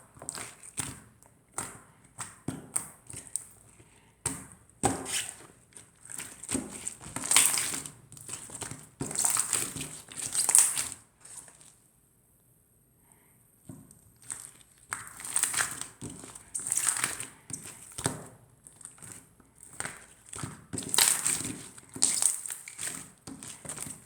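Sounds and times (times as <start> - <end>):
slime crackling and popping: 6.2 - 10.9, 14.2 - 24.0.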